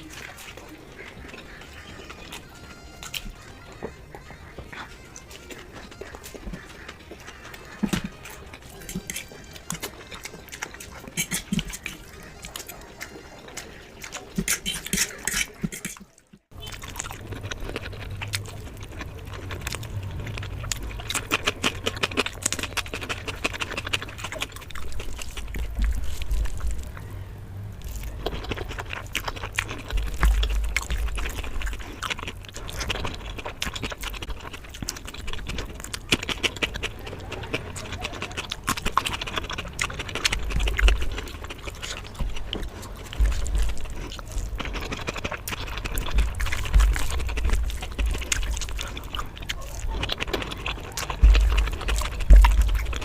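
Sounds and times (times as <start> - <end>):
wet chewing and mouth smacks: 0.0 - 53.0
low hum: 38.7 - 53.0.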